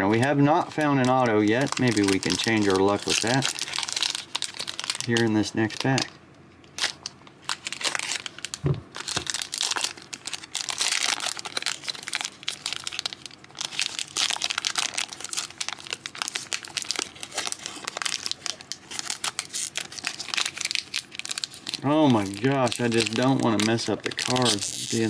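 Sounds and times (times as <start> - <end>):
foil wrapper crinkling: 0.1 - 25.0
soft low thump: 8.6 - 8.9.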